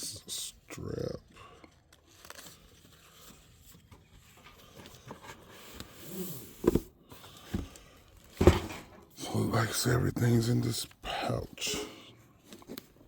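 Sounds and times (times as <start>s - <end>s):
packaging rustling: 1.7s - 5.8s.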